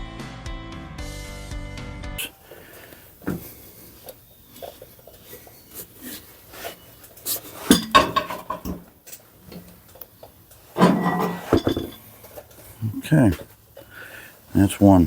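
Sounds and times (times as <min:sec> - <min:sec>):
metal tools clinking: 0:04.6 - 0:12.6
ringing metallic clanks: 0:07.7 - 0:08.8, 0:10.8 - 0:12.1.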